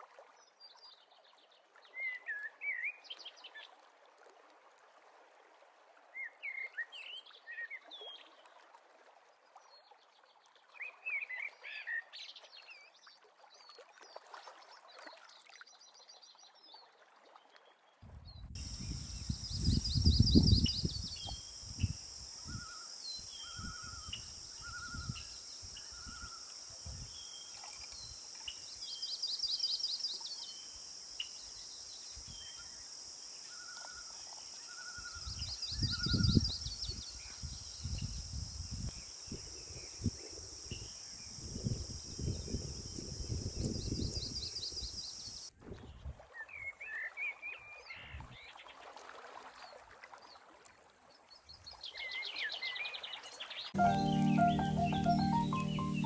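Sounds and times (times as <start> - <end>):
birds singing and chirping: 18.4 - 30.2
steady high hiss: 18.5 - 45.5, 53.8 - 56.0.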